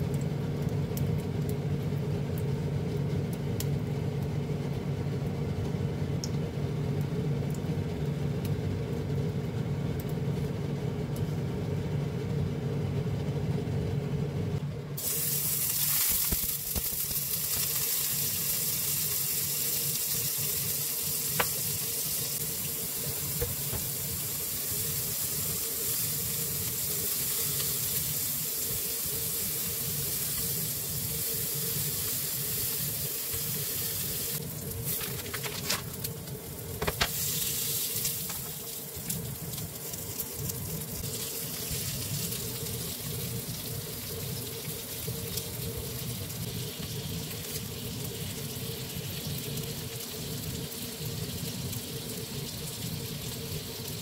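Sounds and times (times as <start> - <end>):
steady low hum: 0.0 - 49.1
shrimp sizzling in oil: 15.0 - 54.0.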